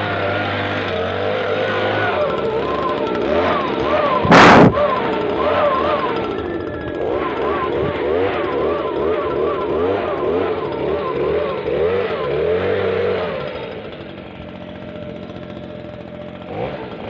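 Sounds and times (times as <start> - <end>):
leaf blower engine surging: 0.0 - 17.0.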